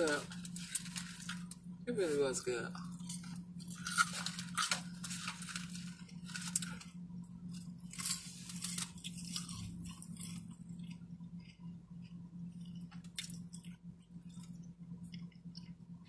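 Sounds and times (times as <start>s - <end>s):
steady low hum: 0.0s - 16.0s
chewing and lip smacking: 8.9s - 16.0s.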